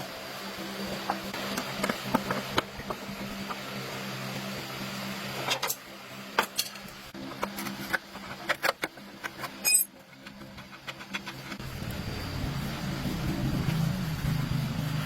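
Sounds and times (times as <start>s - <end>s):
low mechanical hum: 0.0s - 15.0s
hand tools clicking and knocking: 7.4s - 11.6s.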